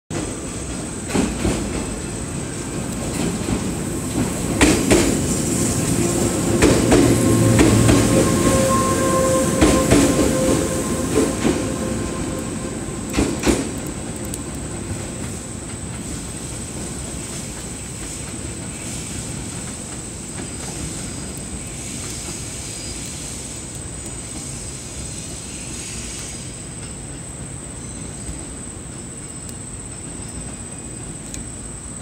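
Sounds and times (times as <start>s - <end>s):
train wheels clacking over joints: 0.1s - 22.6s
train rumble: 0.1s - 32.0s.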